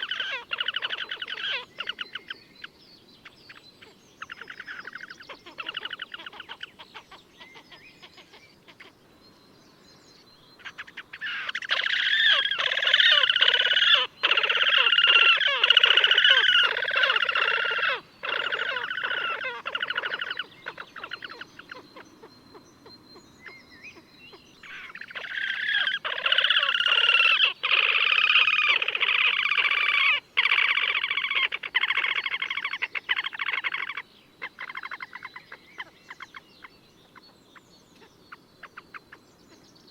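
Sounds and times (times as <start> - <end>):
grebes trilling and squealing: 11.2 - 21.4, 24.7 - 34.0.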